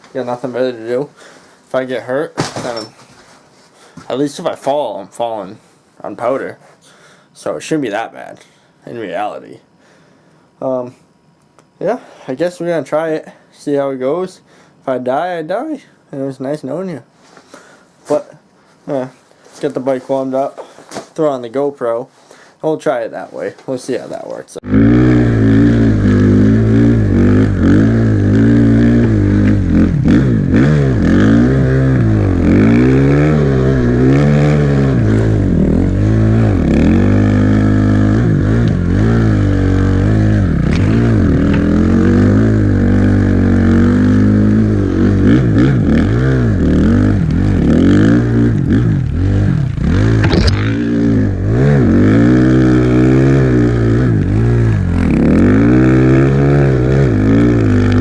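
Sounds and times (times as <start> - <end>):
dirt bike engine revving: 24.6 - 58.0
brief sharp noise: 50.2 - 51.0.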